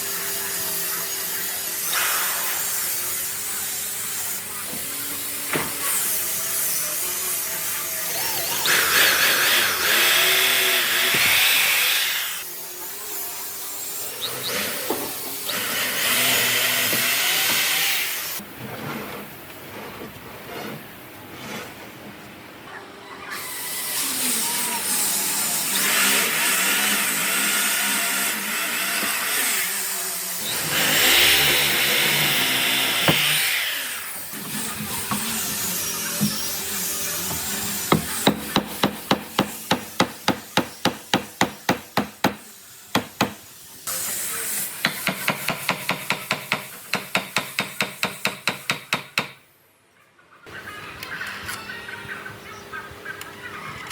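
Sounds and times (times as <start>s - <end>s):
hammering on wood: 37.9s - 43.4s, 44.8s - 49.4s.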